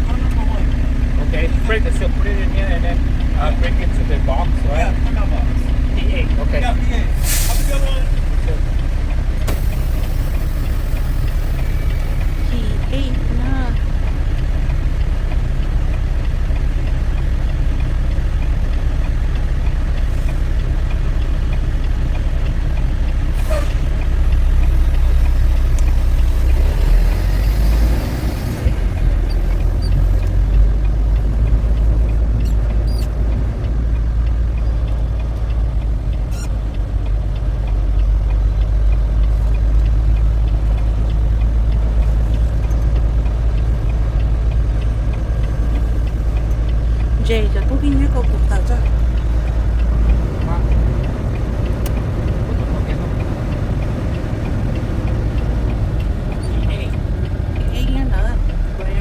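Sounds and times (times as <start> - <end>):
truck engine rumbling: 0.0 - 59.0
short air hiss: 7.2 - 7.8.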